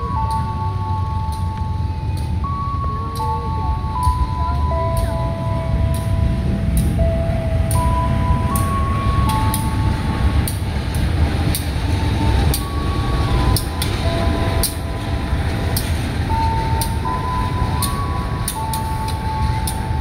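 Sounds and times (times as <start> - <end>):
simple electronic tune: 0.0 - 10.7, 11.8 - 20.0
train rumbling past: 0.0 - 20.0
sharp ticks: 10.4 - 11.8, 13.4 - 14.0.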